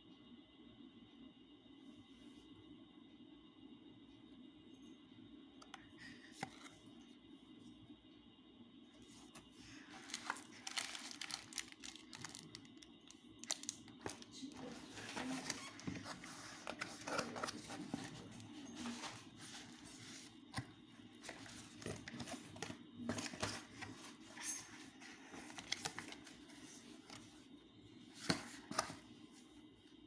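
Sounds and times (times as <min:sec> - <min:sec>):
rustling of handled objects: 0:09.2 - 0:20.4.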